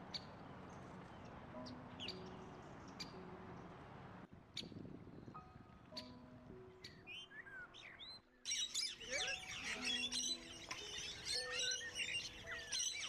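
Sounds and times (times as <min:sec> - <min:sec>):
small birds chirping: 0:04.6 - 0:13.0.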